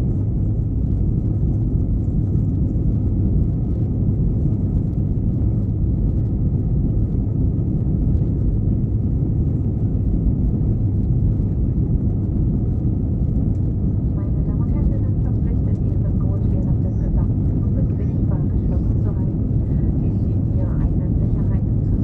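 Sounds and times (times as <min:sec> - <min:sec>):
airplane cabin engine rumble: 0:00.0 - 0:22.0
faint steady whine: 0:00.0 - 0:22.0.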